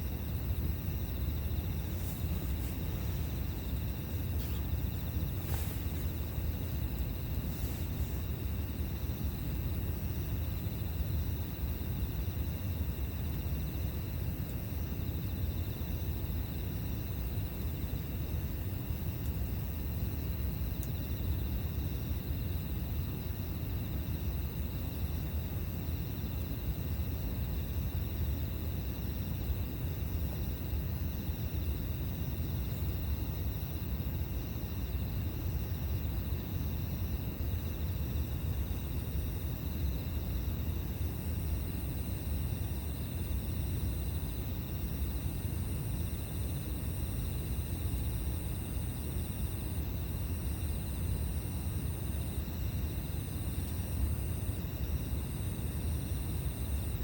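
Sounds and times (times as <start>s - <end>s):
faint fire crackle: 0.0s - 11.0s
insects trilling: 0.0s - 57.0s.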